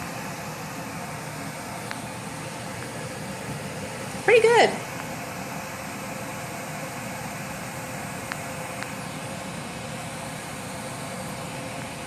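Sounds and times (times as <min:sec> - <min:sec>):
exhaust fan rushing air: 0:00.0 - 0:12.0.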